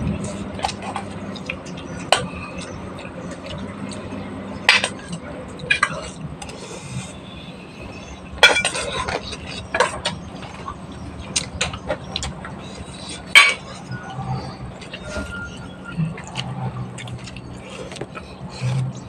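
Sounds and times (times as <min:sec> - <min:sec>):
dishes and utensils clinking: 0:04.6 - 0:06.6, 0:08.4 - 0:10.7, 0:13.3 - 0:14.1.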